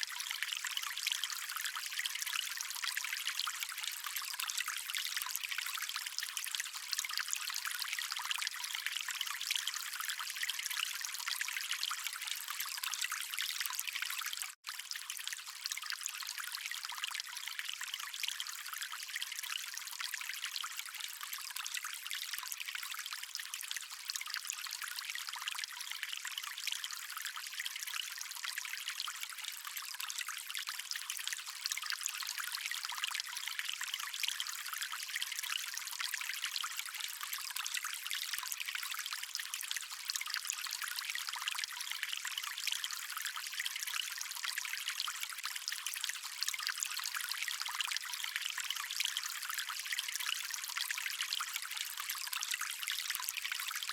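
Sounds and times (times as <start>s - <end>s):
stream of water running: 0.0s - 53.9s.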